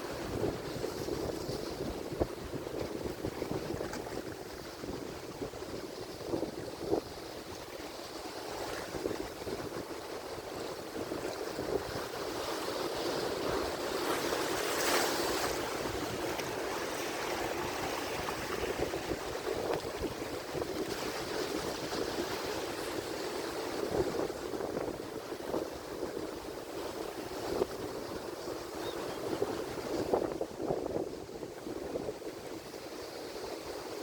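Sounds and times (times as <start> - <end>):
ocean waves breaking: 6.8 - 30.2.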